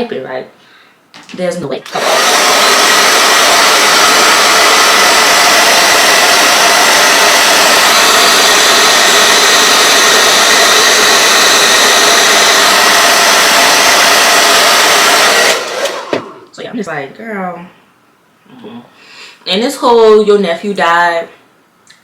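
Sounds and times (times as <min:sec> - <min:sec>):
blow dryer rushing air: 0:01.8 - 0:16.5.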